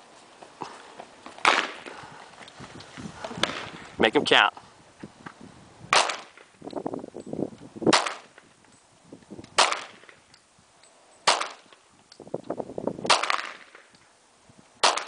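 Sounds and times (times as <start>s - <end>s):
rough scuffing noise: 0.0s - 4.0s
handgun shots: 1.4s - 1.9s, 5.9s - 6.5s, 7.9s - 8.4s, 9.6s - 10.2s, 11.2s - 11.7s, 13.1s - 13.8s.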